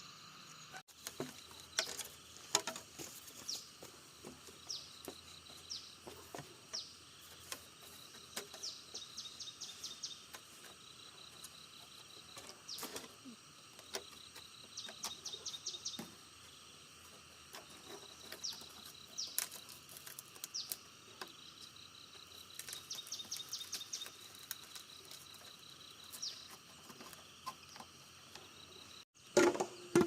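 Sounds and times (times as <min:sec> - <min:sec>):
bird chirping: 0:03.4 - 0:16.6, 0:17.7 - 0:29.0.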